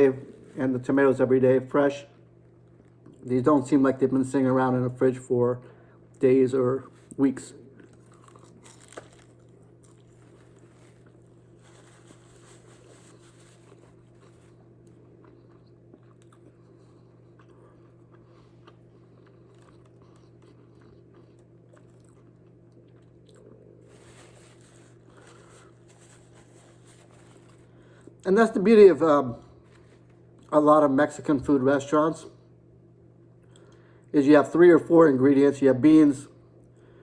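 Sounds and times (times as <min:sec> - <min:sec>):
chewing crunchy taco: 0:07.0 - 0:28.2, 0:29.5 - 0:30.6.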